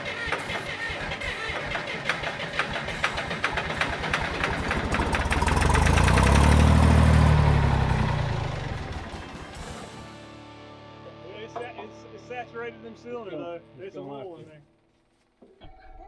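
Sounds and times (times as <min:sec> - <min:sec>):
bulldozer engine cranking: 0:00.0 - 0:09.9
low engine drone: 0:00.9 - 0:09.9.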